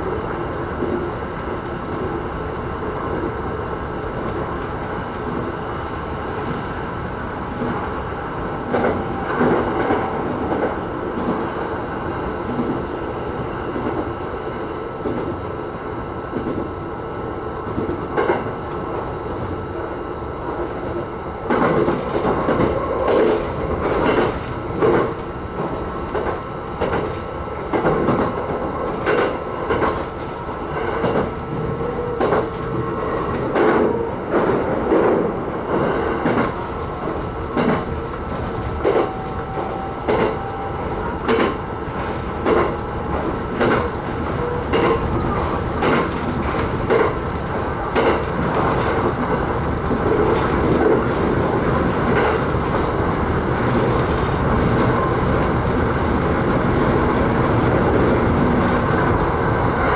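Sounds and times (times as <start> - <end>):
train wheels rumbling on rail: 0.0 - 59.9
wheels clacking over rail joints: 21.4 - 55.9.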